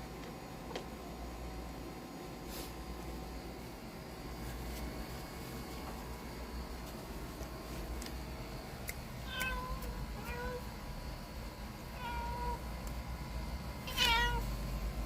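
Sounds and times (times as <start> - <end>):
cat meowing: 9.2 - 10.7, 12.0 - 12.6, 13.9 - 14.5.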